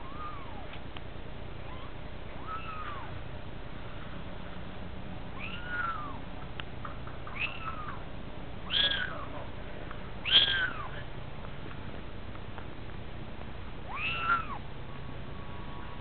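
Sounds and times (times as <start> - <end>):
kittens mewing: 0.0 - 0.8, 1.6 - 3.2, 5.3 - 6.2, 7.2 - 9.5, 10.2 - 11.1, 13.8 - 14.7.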